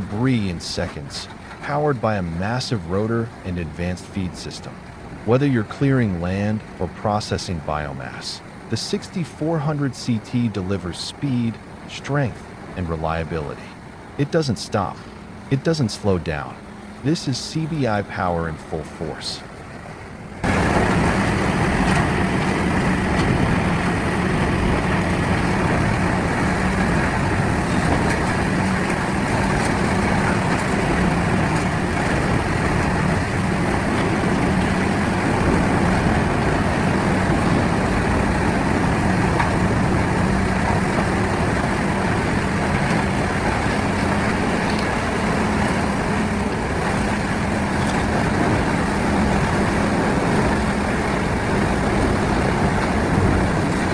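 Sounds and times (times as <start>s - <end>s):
grinding machine running: 20.1s - 53.9s.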